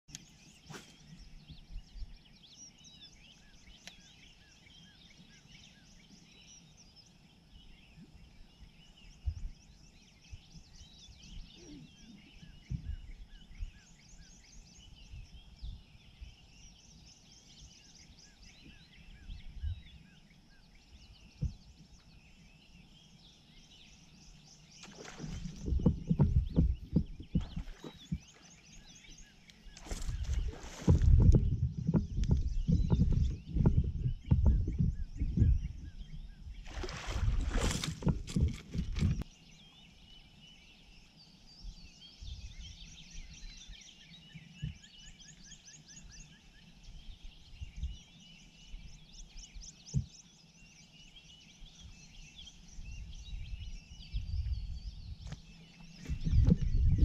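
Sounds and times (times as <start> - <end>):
birds singing: 0.1 - 57.0
soft low thumps: 21.3 - 21.9, 24.8 - 28.4, 29.7 - 39.2, 54.2 - 57.0.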